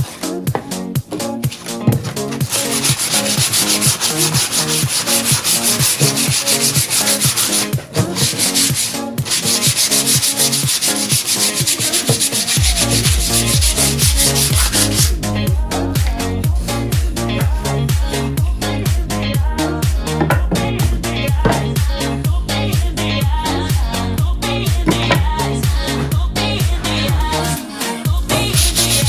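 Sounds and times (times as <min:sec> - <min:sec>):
electronic dance music: 0:01.5 - 0:19.1, 0:24.8 - 0:29.0
wood being sanded: 0:02.1 - 0:15.2, 0:28.6 - 0:29.0.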